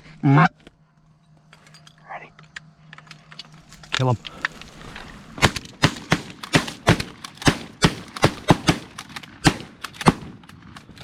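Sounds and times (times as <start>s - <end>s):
shotguns firing: 4.2s - 11.0s.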